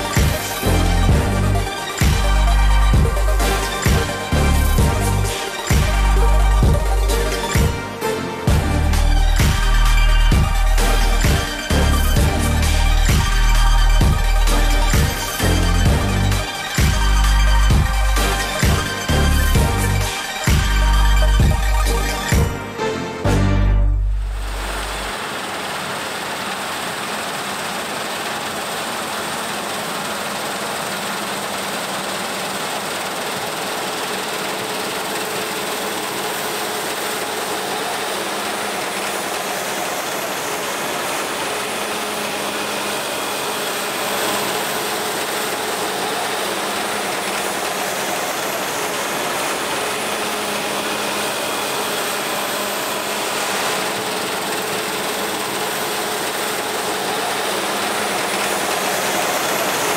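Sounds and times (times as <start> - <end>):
harvest machinery running: 0.0 - 59.9
faint machine whines: 24.4 - 59.9.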